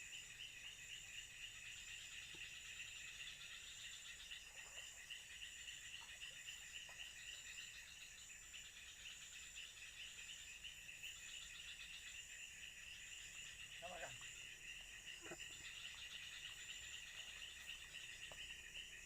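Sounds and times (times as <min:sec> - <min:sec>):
insects trilling: 0:00.0 - 0:19.0
pulsing insect chirp: 0:00.0 - 0:19.0.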